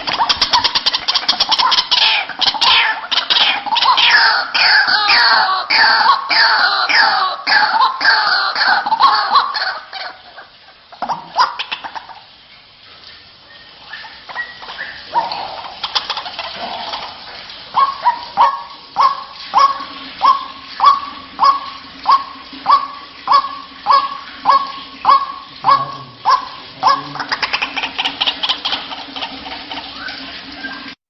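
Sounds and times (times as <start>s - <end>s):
waterhen croaking calls: 0.0s - 31.0s
downward-sliding bird calls: 13.1s - 31.0s.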